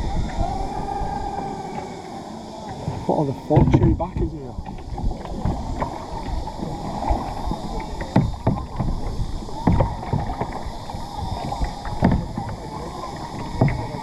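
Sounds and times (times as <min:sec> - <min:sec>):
water splashing and sloshing: 0:00.0 - 0:14.0
paddle knocks and thuds: 0:02.7 - 0:06.0, 0:08.0 - 0:10.7, 0:11.3 - 0:12.7, 0:13.4 - 0:14.0.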